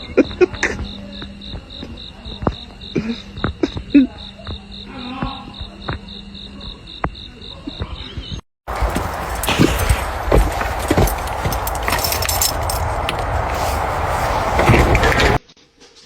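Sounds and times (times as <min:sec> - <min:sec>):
insects chirping: 0:00.0 - 0:15.4.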